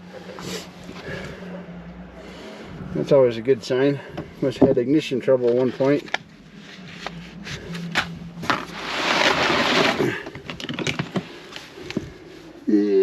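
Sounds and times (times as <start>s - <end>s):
rustling: 5.4s - 12.6s.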